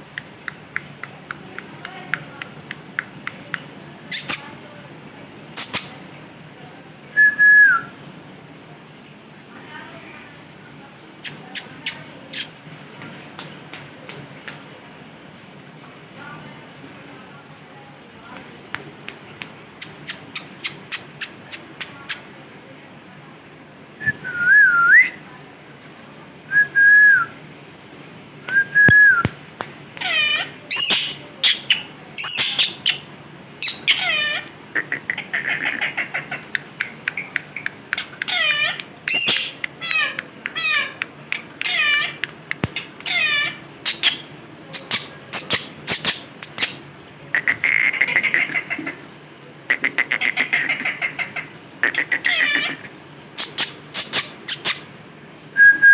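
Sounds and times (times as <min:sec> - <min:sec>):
parrot clicks: 0:00.1 - 0:04.4, 0:18.4 - 0:22.3, 0:35.1 - 0:48.7
parrot whistling and calling: 0:04.1 - 0:04.5, 0:05.5 - 0:06.0, 0:19.8 - 0:22.3, 0:28.5 - 0:29.4, 0:30.0 - 0:46.8, 0:53.4 - 0:54.9.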